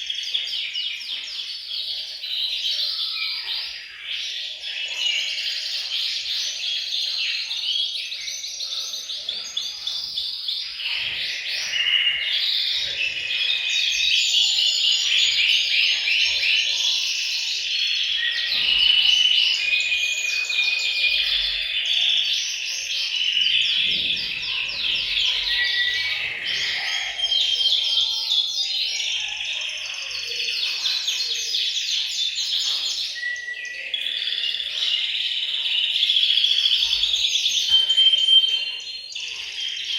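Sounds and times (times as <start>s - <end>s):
canaries singing: 0.0s - 39.9s.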